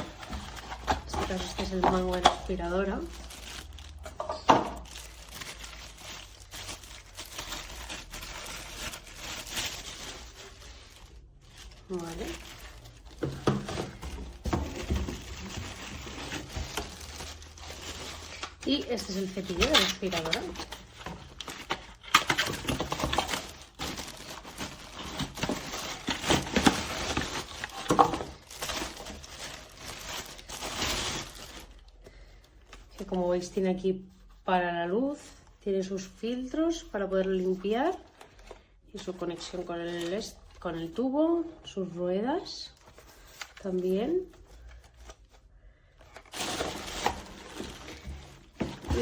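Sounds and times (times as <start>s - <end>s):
plastic packaging crinkling: 0.0s - 33.6s, 42.6s - 45.4s, 46.0s - 49.0s
plastic parts clicking and knocking: 25.0s - 29.2s.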